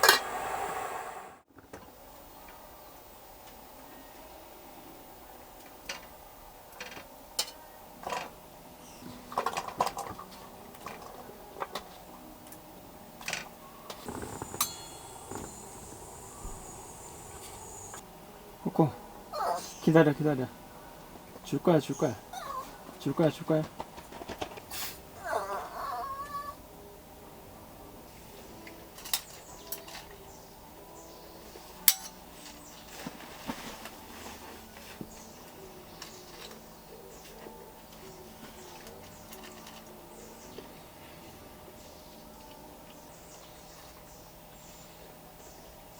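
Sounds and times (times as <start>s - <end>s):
dishes and utensils clinking: 14.0s - 18.0s, 31.9s - 32.2s.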